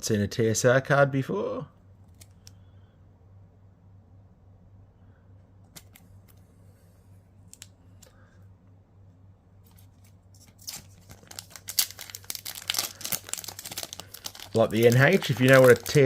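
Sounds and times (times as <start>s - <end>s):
wrapper tearing and crinkling: 10.4s - 16.0s.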